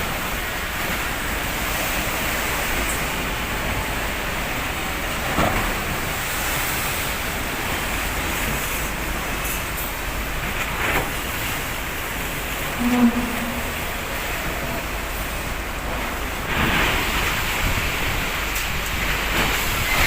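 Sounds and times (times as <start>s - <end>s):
heavy sea waves: 0.0s - 20.0s
strong wind roaring: 11.1s - 20.0s.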